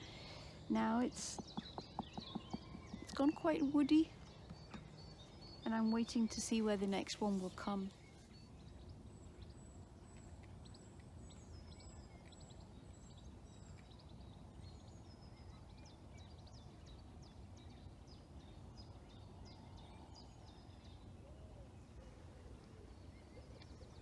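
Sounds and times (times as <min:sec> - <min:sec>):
birds chirping and whistling: 0:00.0 - 0:06.6.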